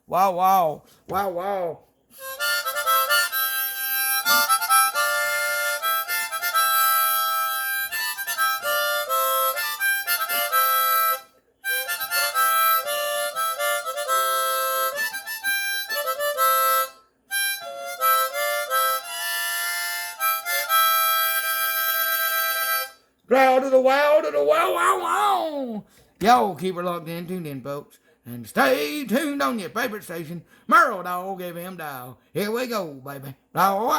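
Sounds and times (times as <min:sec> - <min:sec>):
harmonica playing: 0:02.1 - 0:23.2.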